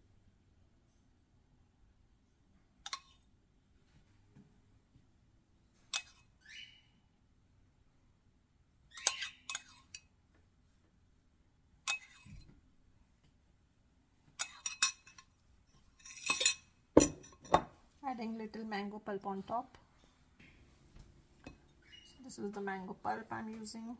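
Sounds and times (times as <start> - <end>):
utensil clinking against glass dish: 14.4 - 15.3, 16.0 - 17.7
utensil scraping glass dish: 16.0 - 16.6.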